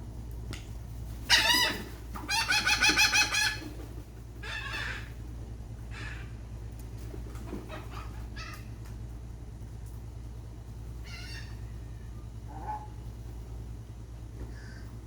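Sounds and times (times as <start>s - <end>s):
seagulls calling: 1.2s - 5.2s, 5.9s - 6.4s, 7.4s - 8.8s, 11.0s - 13.0s.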